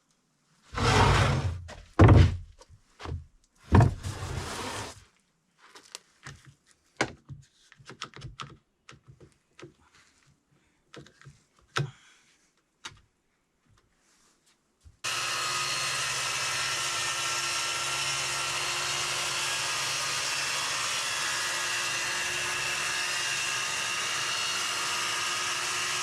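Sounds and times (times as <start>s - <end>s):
boards sliding on bench: 0.7s - 2.4s, 3.7s - 5.0s
heavy wooden thunks: 0.8s - 4.3s.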